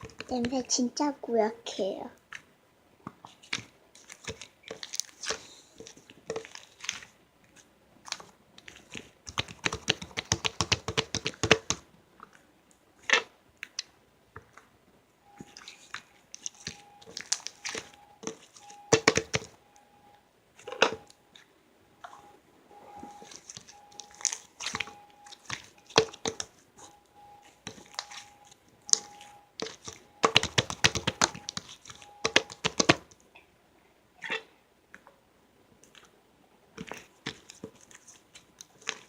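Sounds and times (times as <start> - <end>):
crinkling and crunching handling: 2.3 - 10.2, 11.2 - 19.6, 20.6 - 33.3, 36.8 - 39.0.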